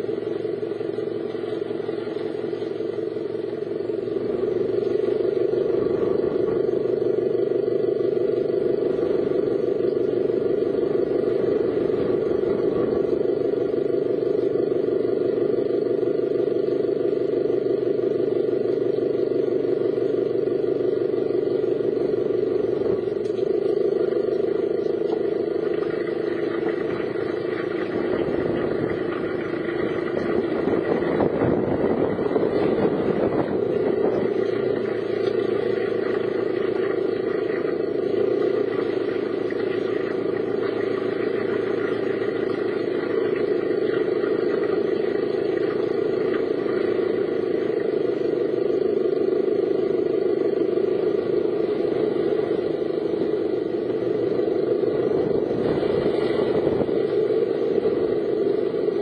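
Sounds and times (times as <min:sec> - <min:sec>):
car engine: 0:00.0 - 0:59.0
road noise: 0:00.0 - 0:59.0.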